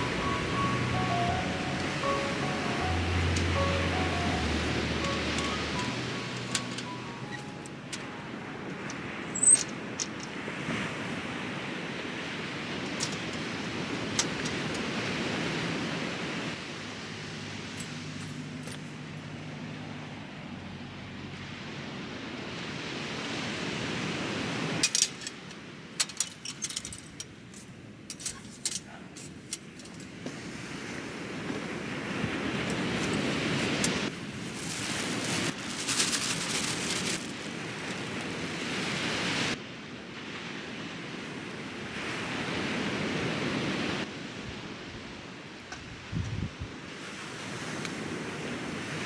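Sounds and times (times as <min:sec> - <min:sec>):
ocean surf washing: 0:00.0 - 0:45.5
sharp clicks and rattles: 0:00.3 - 0:10.4, 0:12.9 - 0:15.0, 0:24.8 - 0:30.3, 0:32.7 - 0:38.9.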